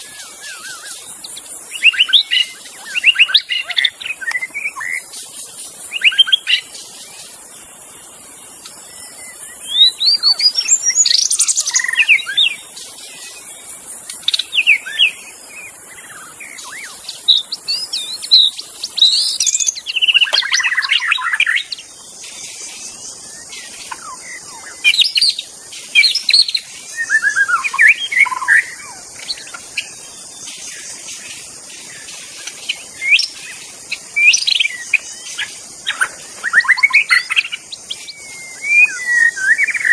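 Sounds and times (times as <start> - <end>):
bird singing whistled phrases: 0.0 - 5.1, 5.8 - 6.7, 8.8 - 21.8, 23.4 - 25.4, 26.0 - 29.0, 34.2 - 39.9
steady high hiss: 0.0 - 39.9.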